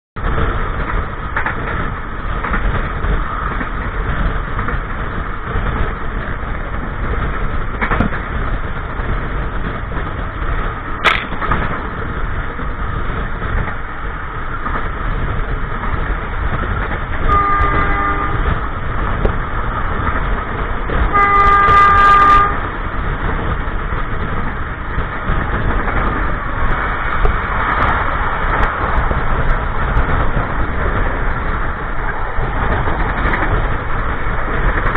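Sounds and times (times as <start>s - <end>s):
train wheels on rails: 0.2s - 34.9s
locomotive horn: 17.2s - 18.7s, 21.1s - 22.8s.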